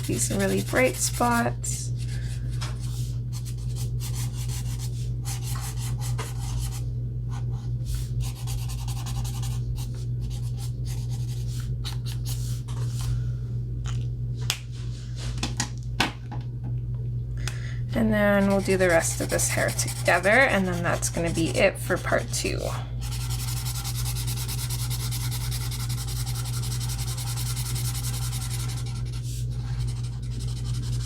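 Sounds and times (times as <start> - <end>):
marker scratching on paper: 0.0 - 1.4, 18.4 - 31.0
steady low hum: 0.0 - 31.0.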